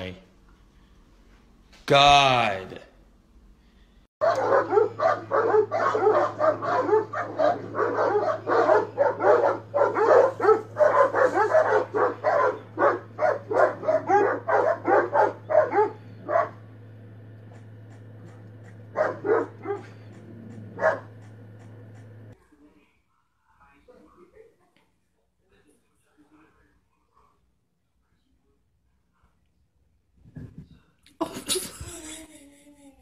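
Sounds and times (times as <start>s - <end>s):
dogs barking: 4.2s - 22.4s.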